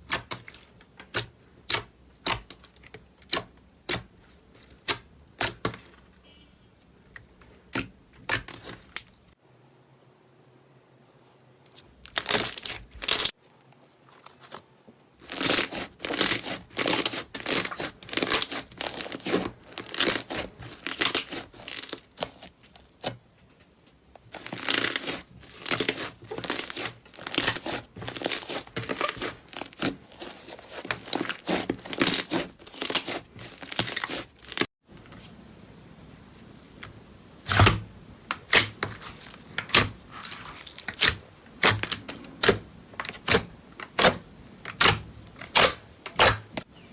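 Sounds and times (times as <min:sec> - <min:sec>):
slime pressed and pulled by hand: 0:15.2 - 0:23.2, 0:24.3 - 0:34.7.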